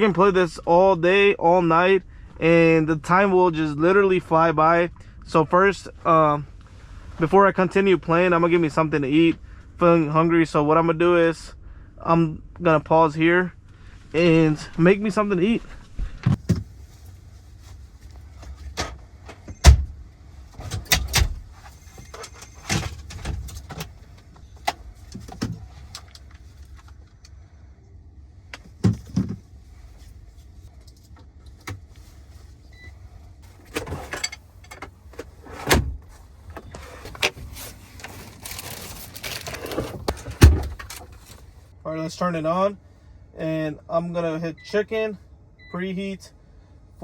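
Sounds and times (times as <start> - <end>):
steady low rumble: 0.0 - 33.7
knocks and clatter of handled items: 28.6 - 29.5.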